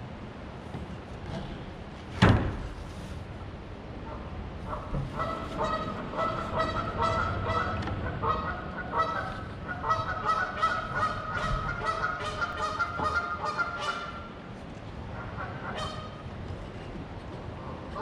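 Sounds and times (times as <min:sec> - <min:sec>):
geese honking: 0:04.1 - 0:14.4, 0:15.2 - 0:16.2.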